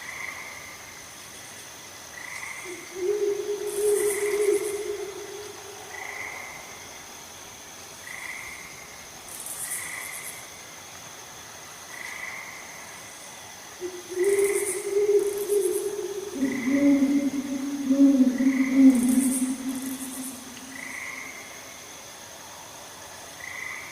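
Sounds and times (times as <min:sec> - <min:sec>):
insect trill: 0:00.0 - 0:10.7, 0:11.9 - 0:22.6
long low hooting calls: 0:02.6 - 0:06.7, 0:13.8 - 0:21.4
short repeating frog call: 0:02.7 - 0:06.0, 0:13.8 - 0:21.1.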